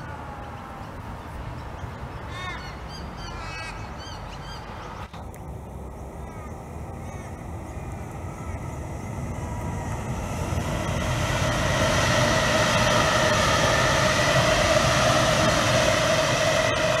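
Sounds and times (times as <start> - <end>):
electric train passing: 0.0 - 17.0
steady train whine: 0.0 - 17.0.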